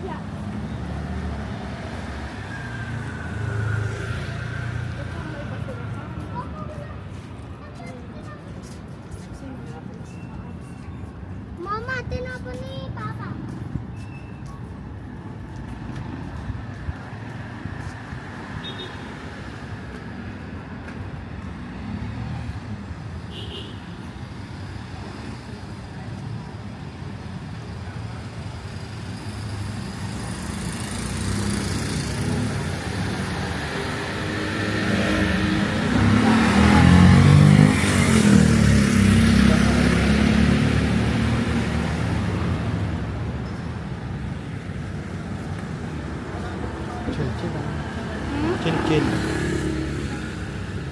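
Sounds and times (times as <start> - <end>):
street traffic: 0.0 - 50.9
vehicle engine passing by: 30.3 - 43.4, 45.3 - 50.9.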